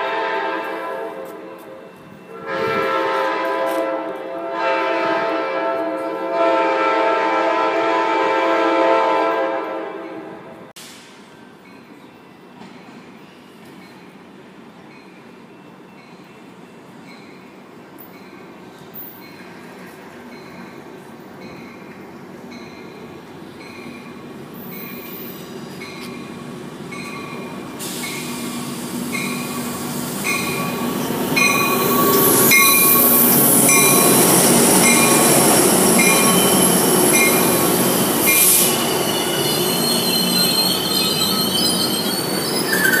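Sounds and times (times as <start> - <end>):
diesel locomotive passing: 0.0 - 43.0
train wheels and brakes squealing: 10.8 - 43.0
locomotive bell ringing: 30.2 - 37.7.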